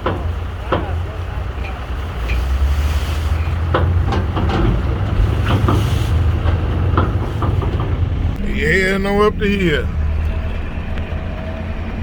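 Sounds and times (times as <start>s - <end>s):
heavy engine rumbling: 0.0s - 12.0s.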